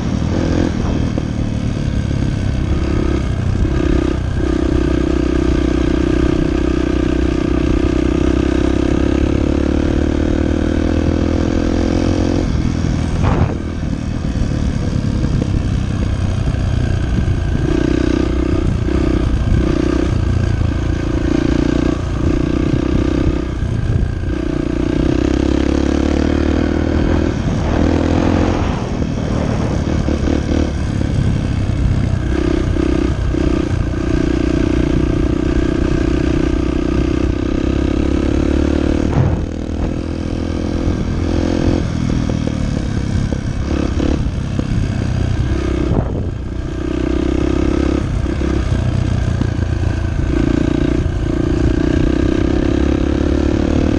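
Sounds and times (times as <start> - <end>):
dirt bike engine running: 0.0 - 53.9
sharp knock: 13.2 - 13.7.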